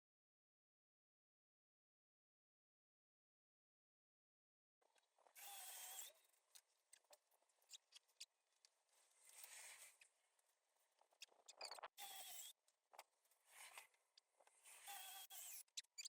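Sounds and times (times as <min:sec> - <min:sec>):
scraping strokes with squeak: 0:05.4 - 0:06.2, 0:09.2 - 0:10.1, 0:11.0 - 0:12.6, 0:13.5 - 0:16.0.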